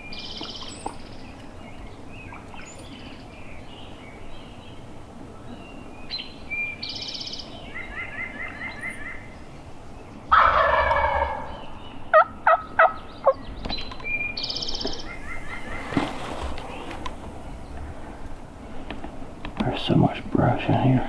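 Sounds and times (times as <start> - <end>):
turkey short sharp calls: 10.3 - 13.0
turkey gobbling: 10.3 - 13.4, 15.0 - 17.4
songbird trilling: 11.0 - 17.8.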